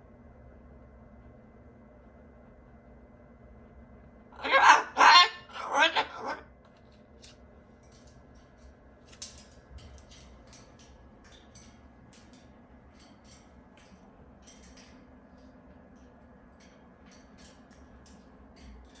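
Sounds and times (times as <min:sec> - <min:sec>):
faint small clicks and ticks: 0:06.6 - 0:19.0.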